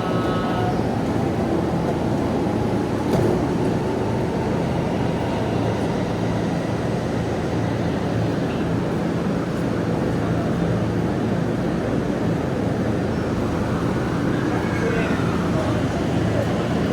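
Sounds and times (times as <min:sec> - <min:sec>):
train rumbling: 0:00.0 - 0:16.9.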